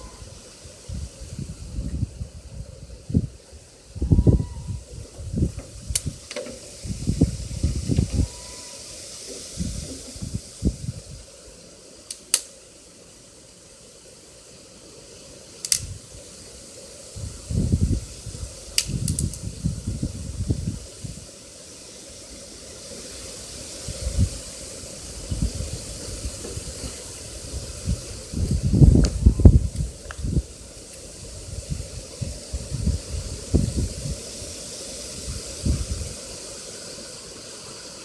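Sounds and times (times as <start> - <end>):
food sizzling in a pan: 3.8 - 11.8.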